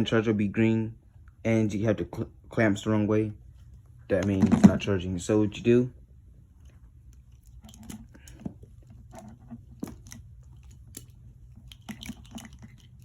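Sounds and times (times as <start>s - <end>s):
steady low hum: 0.0s - 13.0s
charger clamps and cable rustling: 6.4s - 13.0s.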